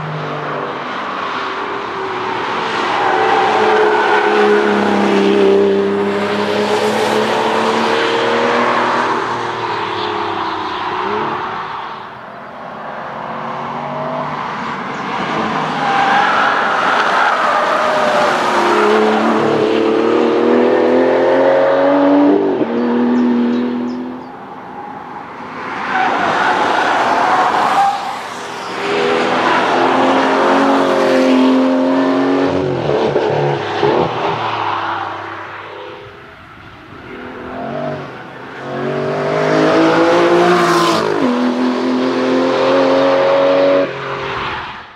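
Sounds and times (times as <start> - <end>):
car engine at full throttle: 14.0 - 25.1.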